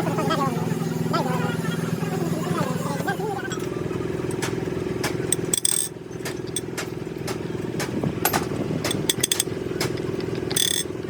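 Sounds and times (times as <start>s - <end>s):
motor running steadily: 0.0s - 11.0s
metallic clinks and taps: 5.3s - 6.9s, 8.2s - 10.9s.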